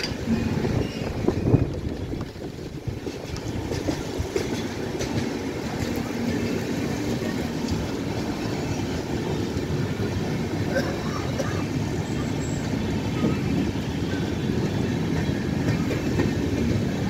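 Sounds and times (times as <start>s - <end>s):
wheels clicking over rail joints: 0.0s - 8.4s
train wheels rumbling on rail: 0.0s - 17.0s.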